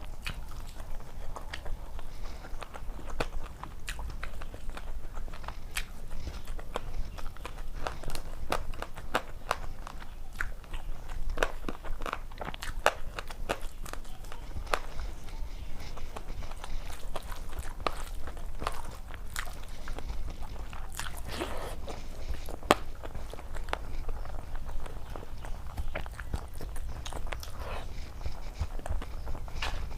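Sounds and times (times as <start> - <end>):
person chewing crunchy food: 0.0 - 29.9.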